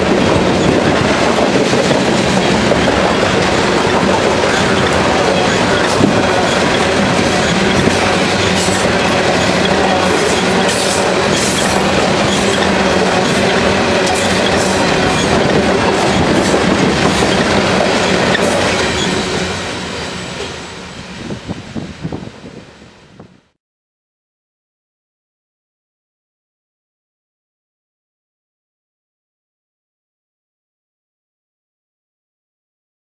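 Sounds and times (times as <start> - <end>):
wheels clicking over rail joints: 0.0 - 19.4
freight train rolling past: 0.0 - 23.5.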